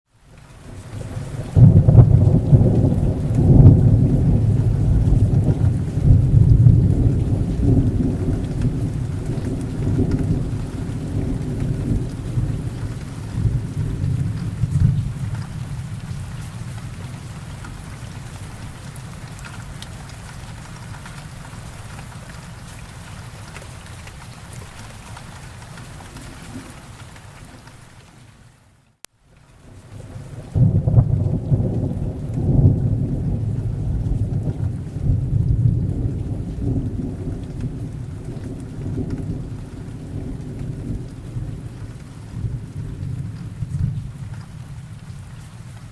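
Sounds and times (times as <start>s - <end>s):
steady rain: 0.1s - 45.9s
thunder rumbling: 0.7s - 22.2s, 30.0s - 45.9s.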